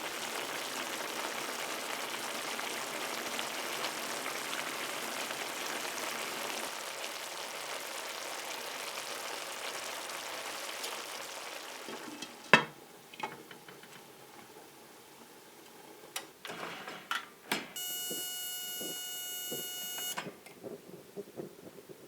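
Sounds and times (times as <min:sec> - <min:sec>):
steady electronic beep: 0:17.8 - 0:20.2.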